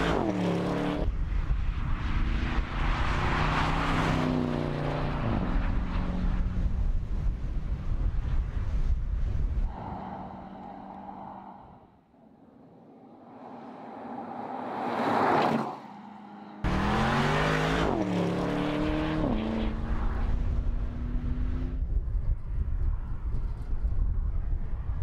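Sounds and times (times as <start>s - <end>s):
road and tyre noise: 0.0s - 25.0s
car engine passing: 9.7s - 21.8s.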